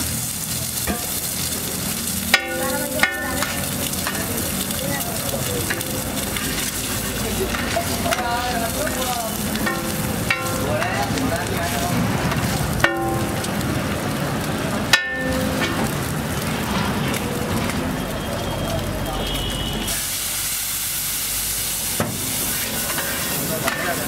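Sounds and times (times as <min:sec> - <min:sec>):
eggs sizzling in oil: 0:00.0 - 0:24.0
metal spatula striking griddle: 0:00.8 - 0:01.5, 0:02.2 - 0:14.0, 0:14.8 - 0:17.3, 0:22.8 - 0:24.0.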